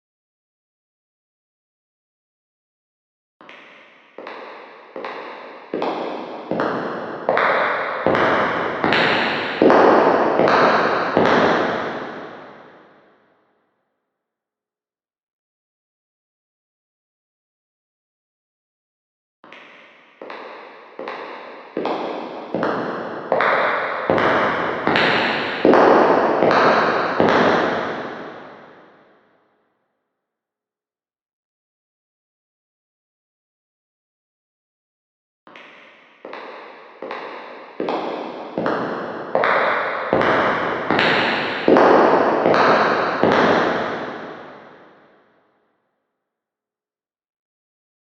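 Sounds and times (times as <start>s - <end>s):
echoing footsteps: 3.8s - 12.8s, 20.1s - 28.8s, 36.2s - 45.0s.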